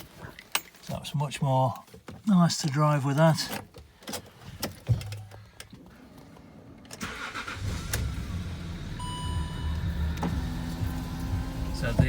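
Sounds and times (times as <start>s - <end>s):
diesel engine idling: 7.0s - 12.0s
electronic beep: 9.0s - 9.9s.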